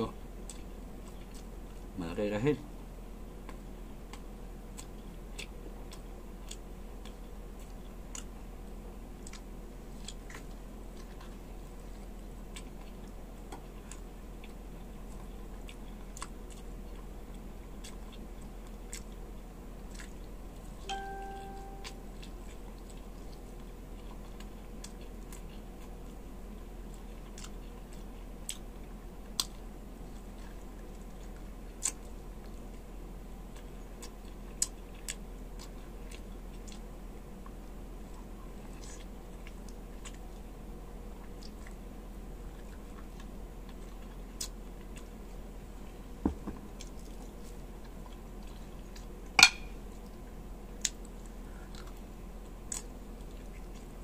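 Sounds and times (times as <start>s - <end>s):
person chewing food: 0.4s - 1.9s, 3.3s - 54.0s
low hum: 20.5s - 22.7s.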